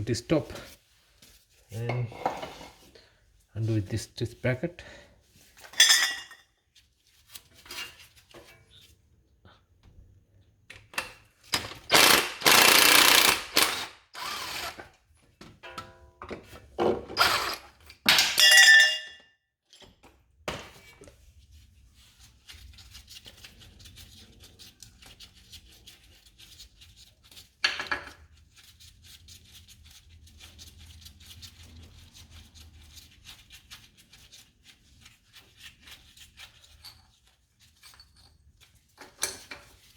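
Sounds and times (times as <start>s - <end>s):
impact wrench bursts: 11.6s - 14.9s, 17.2s - 17.7s
ringing metal clink: 18.4s - 19.2s.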